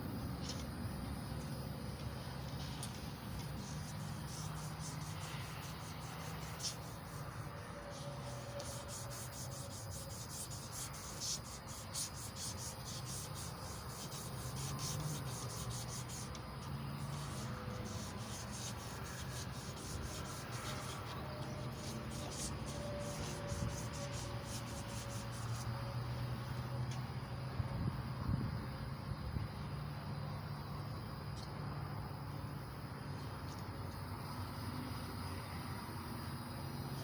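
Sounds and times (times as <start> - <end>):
emery cloth sanding metal: 2.4 - 26.2.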